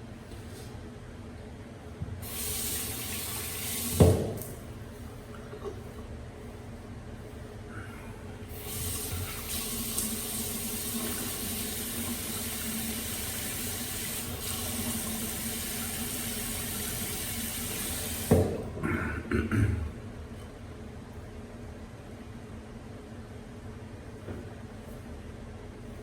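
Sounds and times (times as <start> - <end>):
sink tap running: 2.2 - 4.5, 8.5 - 18.6.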